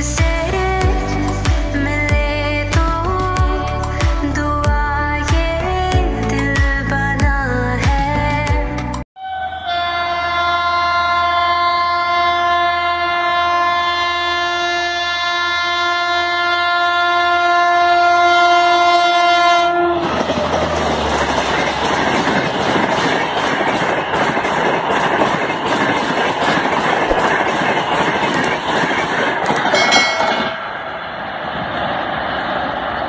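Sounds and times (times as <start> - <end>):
locomotive horn blast: 9.2 - 20.5
train passing: 17.9 - 33.0.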